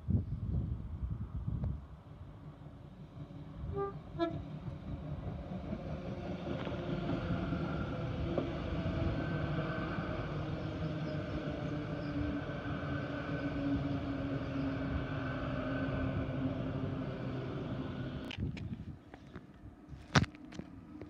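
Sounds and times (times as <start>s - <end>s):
train rumble and hum: 0.0s - 21.0s
train horn notes: 3.6s - 4.5s.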